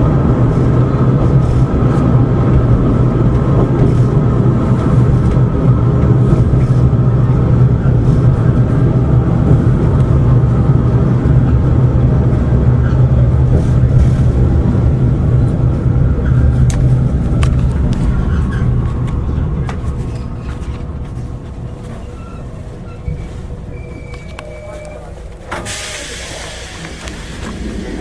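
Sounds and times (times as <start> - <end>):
train engine and wheels rumbling: 0.0 - 28.0
short squeaks: 21.9 - 25.2.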